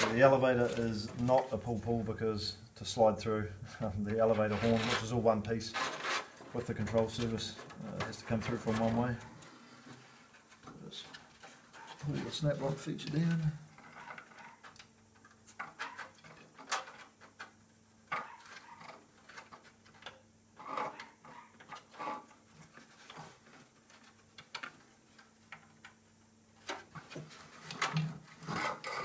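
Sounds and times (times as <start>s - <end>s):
plastic parts clicking and tapping: 22.8s - 26.0s.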